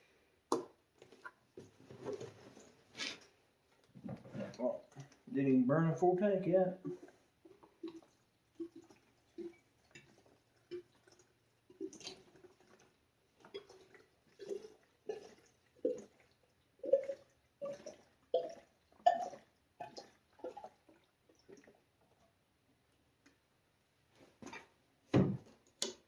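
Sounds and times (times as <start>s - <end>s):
liquid glugging from a jug: 1.0s - 5.4s, 6.8s - 22.4s.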